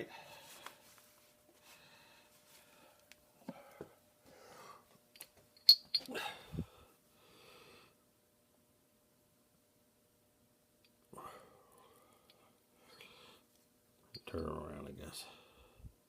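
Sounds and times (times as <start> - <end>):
sharp metal clink: 5.6 - 6.1.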